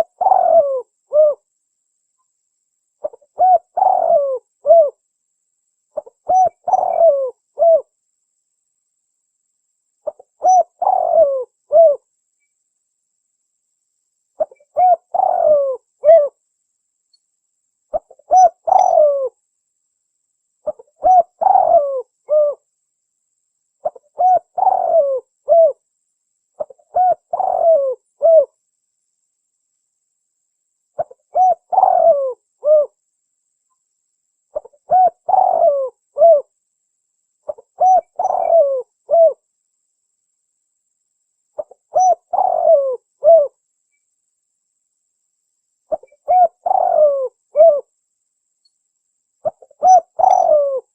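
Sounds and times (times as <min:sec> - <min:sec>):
dove cooing: 0:00.0 - 0:01.5, 0:03.0 - 0:05.0, 0:06.0 - 0:07.9, 0:10.0 - 0:12.0, 0:14.4 - 0:16.4, 0:17.9 - 0:19.4, 0:20.6 - 0:22.6, 0:23.8 - 0:25.8, 0:26.6 - 0:28.6, 0:31.0 - 0:33.0, 0:34.5 - 0:36.5, 0:37.5 - 0:39.4, 0:41.6 - 0:43.6, 0:45.9 - 0:47.9, 0:49.4 - 0:50.9.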